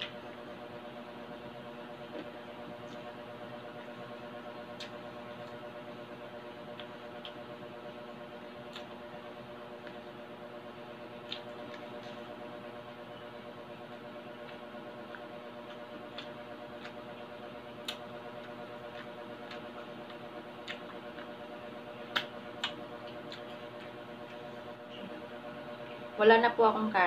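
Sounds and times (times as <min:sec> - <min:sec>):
low steady hum: 0:00.0 - 0:27.0
crunching and chewing: 0:01.9 - 0:03.2, 0:04.6 - 0:05.6, 0:08.6 - 0:10.1, 0:11.0 - 0:12.4, 0:14.3 - 0:25.1.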